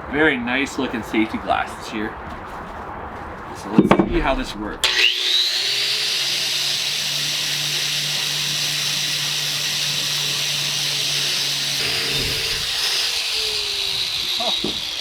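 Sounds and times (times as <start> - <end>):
wire brush grinder on steel: 4.8 - 15.0.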